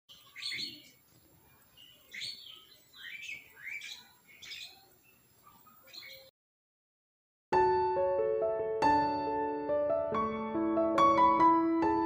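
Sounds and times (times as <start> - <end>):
high bird chirps: 0.1 - 6.3.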